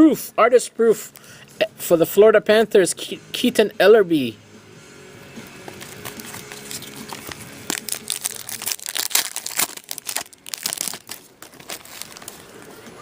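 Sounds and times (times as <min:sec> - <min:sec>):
foil wrapper crinkling and tearing: 0:05.8 - 0:12.6.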